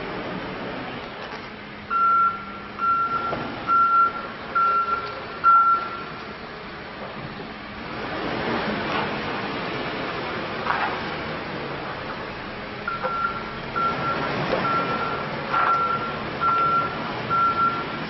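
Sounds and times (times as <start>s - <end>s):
backup alarm beeping: 1.9s - 6.2s, 12.9s - 18.0s.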